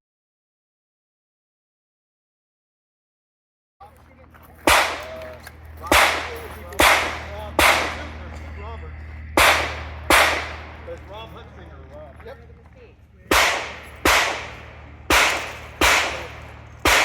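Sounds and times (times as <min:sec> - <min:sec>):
pistol shots: 0:04.6 - 0:08.4, 0:09.4 - 0:11.1, 0:13.3 - 0:17.0.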